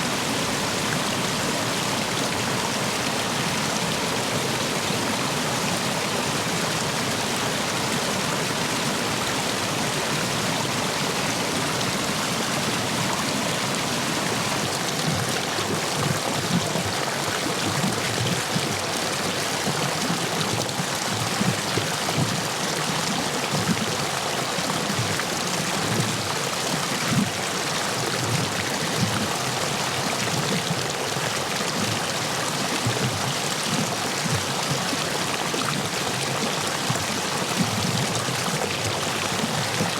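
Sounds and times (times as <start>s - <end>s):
stream water rushing over stones: 0.0s - 39.9s
water splashing and gurgling: 6.8s - 39.9s.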